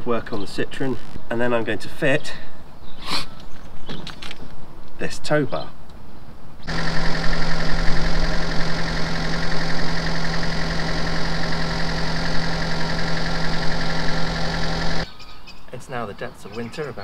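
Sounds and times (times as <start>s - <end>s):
car engine idling: 6.7s - 15.1s
suspension pump: 6.7s - 15.1s.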